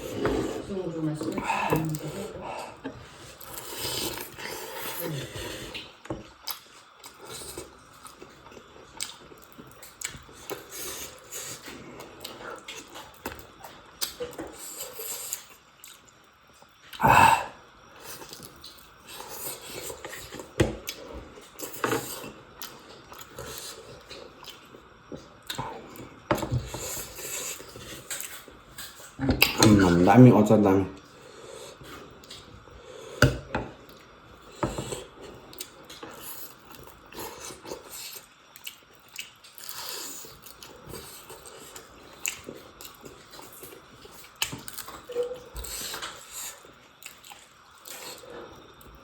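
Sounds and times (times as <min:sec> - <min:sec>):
people chewing and eating: 0:00.0 - 0:49.0.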